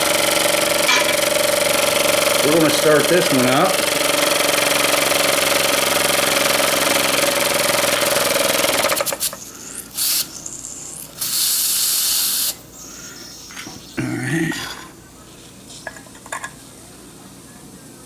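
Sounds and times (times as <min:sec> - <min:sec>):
small steam engine whirring: 0:00.0 - 0:12.6
steam hissing: 0:07.5 - 0:13.4.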